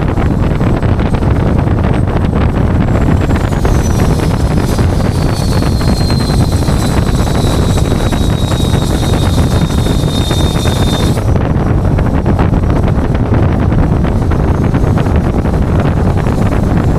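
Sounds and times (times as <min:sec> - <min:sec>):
truck engine and road rumble: 0:00.0 - 0:16.9
wind buffeting microphone: 0:00.0 - 0:16.9
high whine sliding down: 0:01.9 - 0:11.9.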